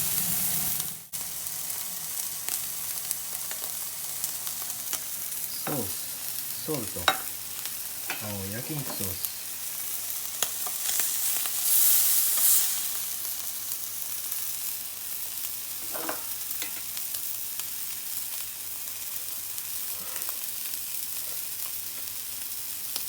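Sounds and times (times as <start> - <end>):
meat sizzling in a pan: 0.0 - 23.0.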